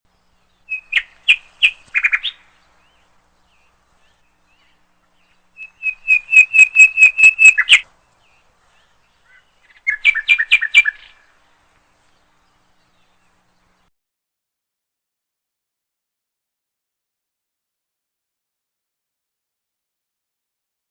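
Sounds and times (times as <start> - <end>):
bird singing rapid notes: 0.1 - 13.9.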